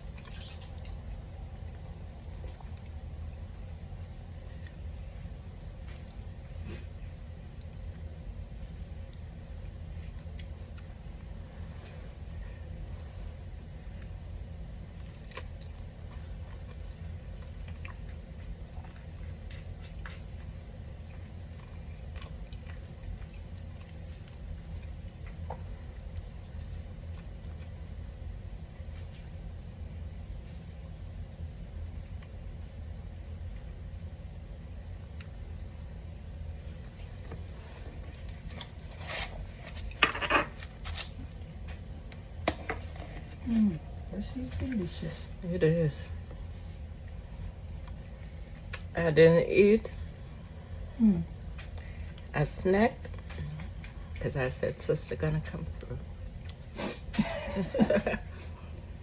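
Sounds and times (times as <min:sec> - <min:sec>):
person chewing food: 0:00.0 - 0:11.5, 0:12.2 - 0:33.9, 0:46.0 - 0:48.9
steady low hum: 0:00.0 - 0:59.0.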